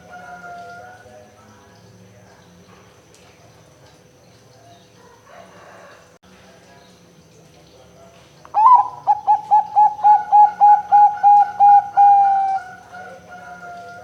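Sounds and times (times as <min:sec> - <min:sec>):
dove cooing: 0:08.6 - 0:14.0.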